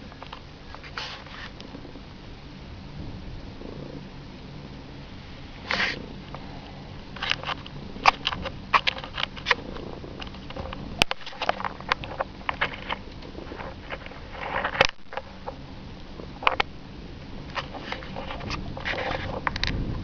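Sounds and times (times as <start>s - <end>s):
cat purring: 0.1s - 14.6s.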